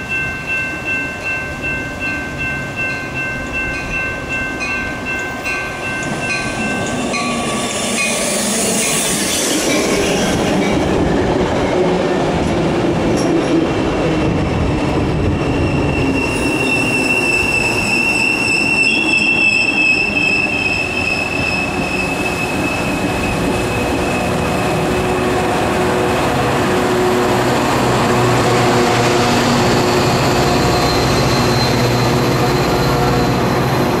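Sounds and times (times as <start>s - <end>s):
train cars rumbling and clacking: 0.0s - 34.0s
high wheel squeal: 15.4s - 24.4s, 29.7s - 33.8s.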